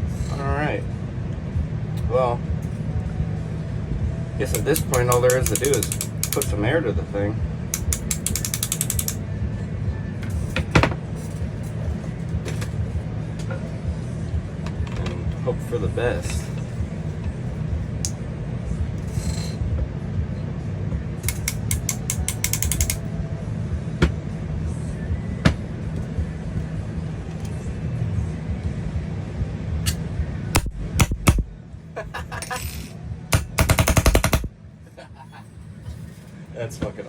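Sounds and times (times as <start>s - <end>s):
fan hum: 0.0s - 37.0s
paintball marker shots: 30.6s - 31.5s, 33.4s - 34.5s.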